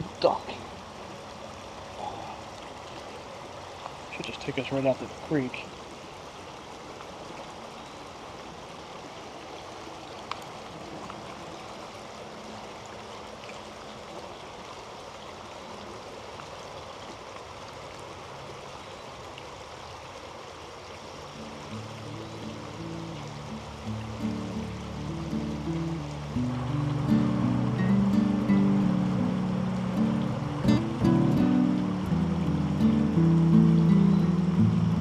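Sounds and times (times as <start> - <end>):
creek water flowing: 0.0 - 35.0
music: 21.4 - 35.0.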